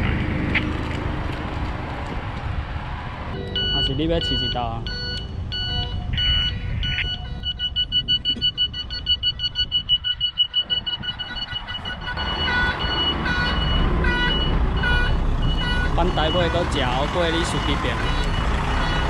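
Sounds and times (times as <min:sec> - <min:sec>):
diesel engine rumble: 0:00.0 - 0:19.0
truck reverse beeper: 0:03.4 - 0:19.0.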